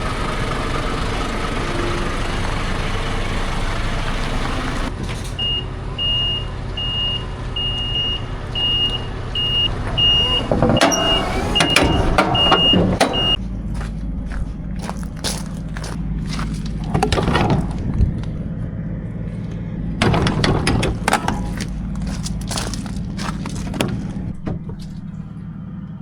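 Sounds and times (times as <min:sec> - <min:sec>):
diesel truck idling: 0:00.0 - 0:26.0
electronic warning beeper: 0:05.5 - 0:13.4
sharp knocks and clatter: 0:09.9 - 0:13.4, 0:15.0 - 0:18.5, 0:20.0 - 0:25.4.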